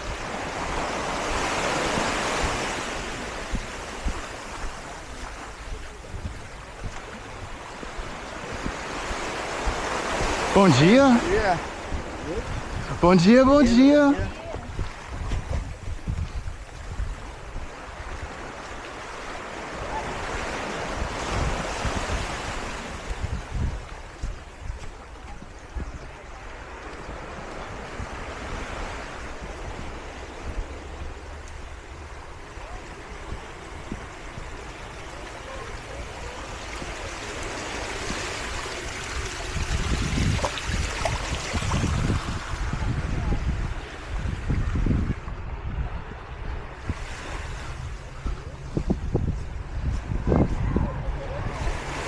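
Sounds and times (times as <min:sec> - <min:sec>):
surf washing up on sand: 0:00.0 - 0:45.6, 0:46.6 - 0:52.0
wind buffeting microphone: 0:00.0 - 0:52.0.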